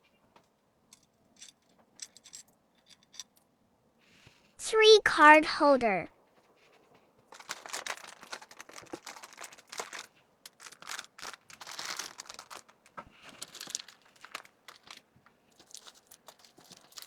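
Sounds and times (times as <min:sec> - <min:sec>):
packaging crinkling and rustling: 0:06.4 - 0:17.0.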